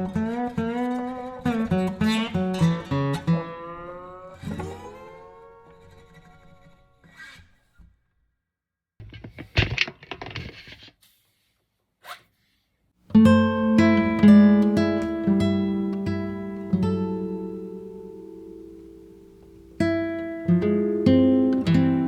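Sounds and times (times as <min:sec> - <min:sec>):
acoustic guitar music: 0:00.0 - 0:06.6, 0:13.1 - 0:22.0.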